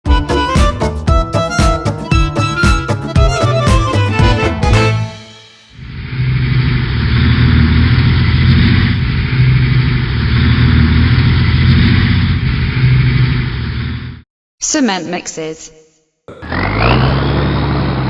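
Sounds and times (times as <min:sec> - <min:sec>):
car engine running steadily: 0:06.3 - 0:14.1.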